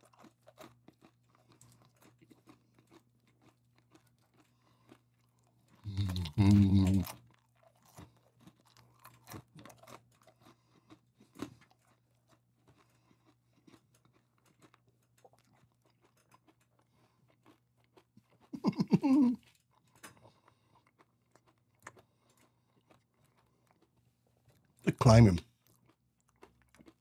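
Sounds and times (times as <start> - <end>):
popcorn chewing crunches: 0.0 - 27.0
short vocal sound: 5.9 - 7.1, 18.6 - 19.4.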